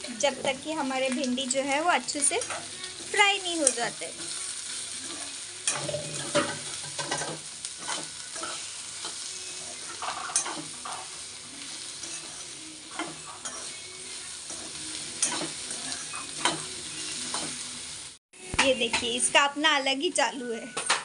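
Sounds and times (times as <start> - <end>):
okra sizzling in oil: 0.0 - 19.6
spoon scraping and knocking pan: 5.0 - 11.2, 14.5 - 17.6.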